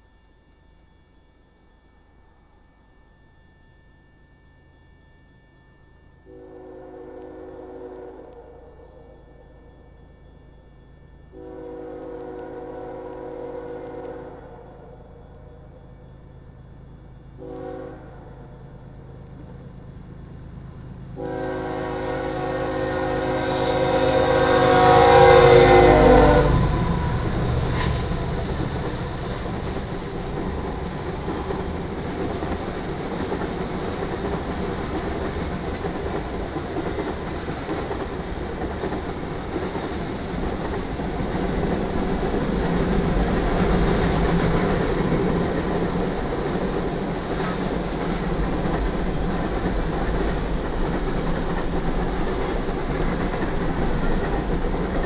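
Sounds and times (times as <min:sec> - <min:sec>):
freight train rumbling past: 0:00.0 - 0:55.0
locomotive air horn: 0:06.3 - 0:08.6, 0:11.4 - 0:14.8, 0:17.4 - 0:18.4, 0:21.2 - 0:27.8.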